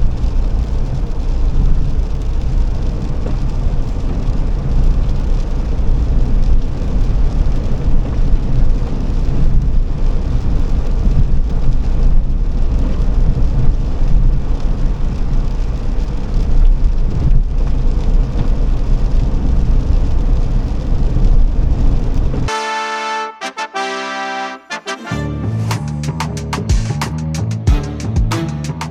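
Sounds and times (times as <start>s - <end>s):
car road and engine noise: 0.0s - 22.5s
brass music: 22.5s - 28.9s.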